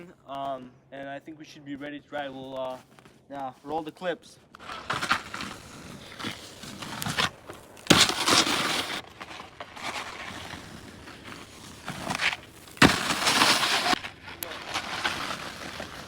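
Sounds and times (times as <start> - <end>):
snowboard scraping over snow: 4.6 - 16.0.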